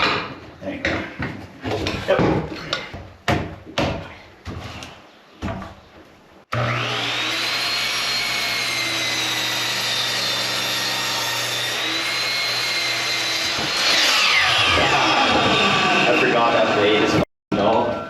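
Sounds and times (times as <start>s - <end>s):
electric saw motor whining: 6.5s - 17.2s.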